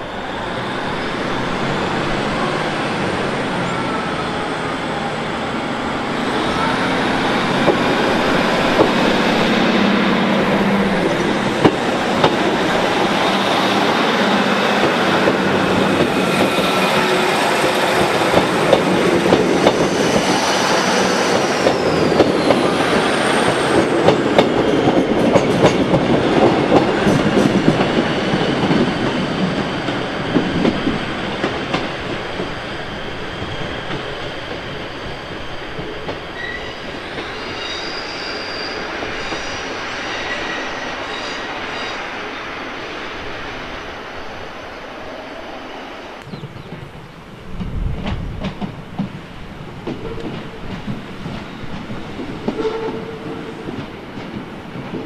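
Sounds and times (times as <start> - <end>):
high wheel squeal: 32.7 - 42.1.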